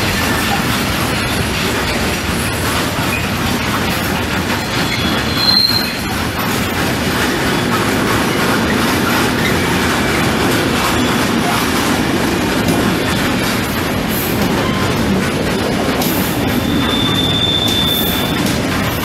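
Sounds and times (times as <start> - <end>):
rumble of train wheels on rails: 0.0 - 19.0
wheel squeal: 2.9 - 6.8, 14.1 - 15.2, 16.2 - 19.0.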